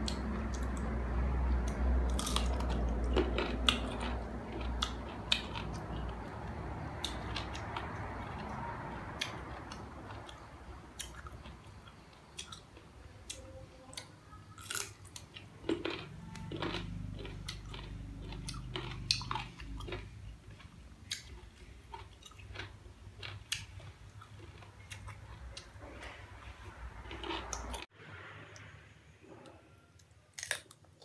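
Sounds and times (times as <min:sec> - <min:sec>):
crisp crunches of chewing: 0:02.1 - 0:08.6, 0:14.6 - 0:26.1, 0:27.0 - 0:27.8, 0:30.3 - 0:31.0.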